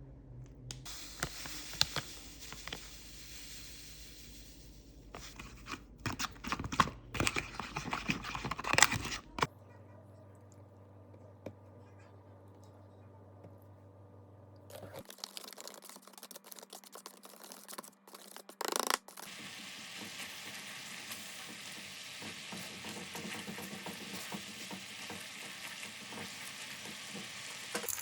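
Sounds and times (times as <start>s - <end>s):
low steady hum: 0.0s - 15.1s
rustling and scraping handling: 0.9s - 9.5s, 14.7s - 19.3s.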